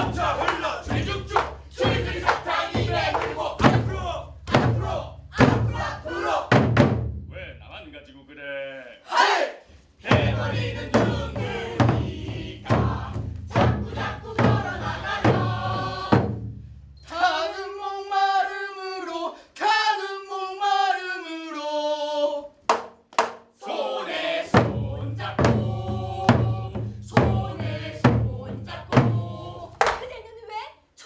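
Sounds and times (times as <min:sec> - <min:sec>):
percussion beating a steady rhythm: 0:00.0 - 0:07.8, 0:10.0 - 0:16.9, 0:22.7 - 0:23.6, 0:24.5 - 0:30.2.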